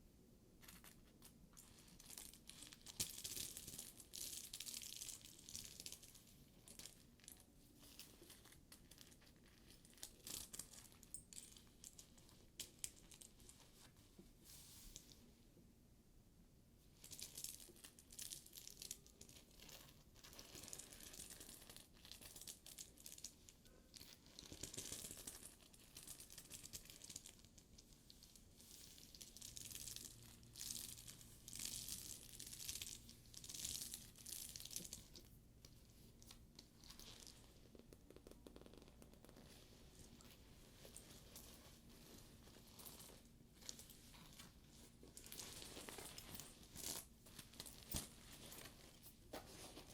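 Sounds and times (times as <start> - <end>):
fingers scratching leather bag: 37.1 - 39.6.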